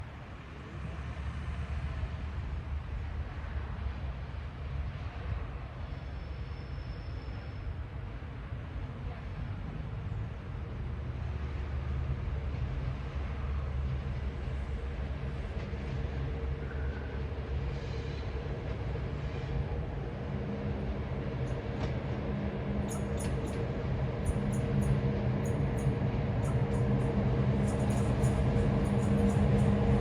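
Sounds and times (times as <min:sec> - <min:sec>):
train rumble: 0:00.0 - 0:30.0.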